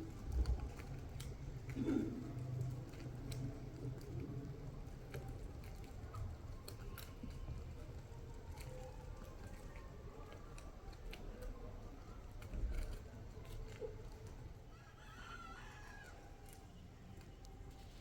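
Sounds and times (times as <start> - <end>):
faint rooster crowing: 14.7 - 16.6.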